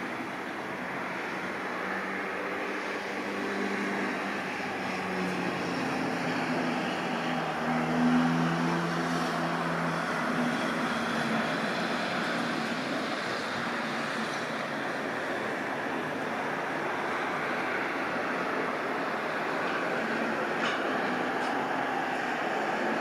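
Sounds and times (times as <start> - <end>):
city traffic rumble: 0.0 - 23.0
distant jet engines: 0.0 - 23.0.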